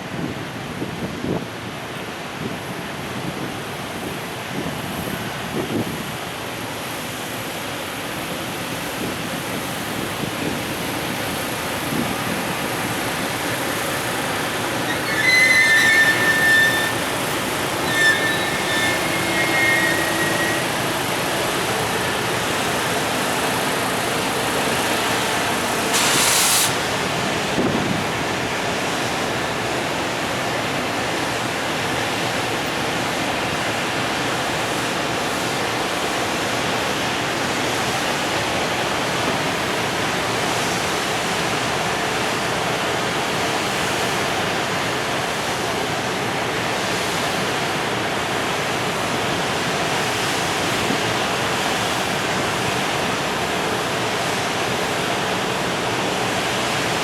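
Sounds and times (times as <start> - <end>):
train wheels rushing on rails: 0.0 - 57.0
high-pitched squeals: 13.0 - 24.2
short hiss: 25.9 - 26.9.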